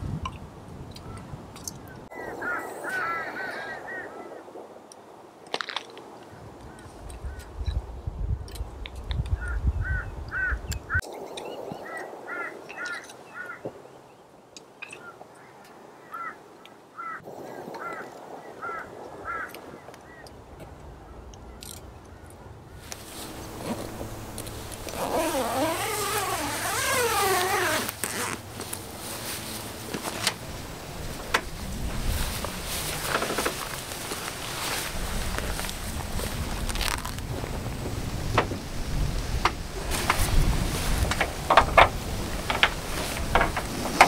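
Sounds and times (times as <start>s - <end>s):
birds chirping: 1.0s - 4.5s, 9.3s - 17.2s.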